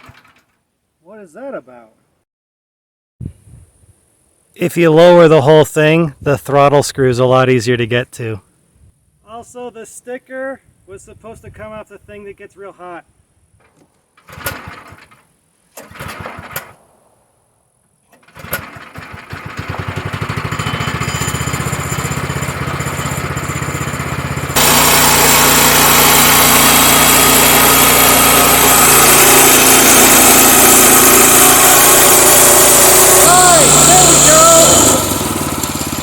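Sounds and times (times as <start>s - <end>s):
small gasoline engine running: 14.3s - 15.1s, 15.8s - 16.7s, 18.2s - 36.0s.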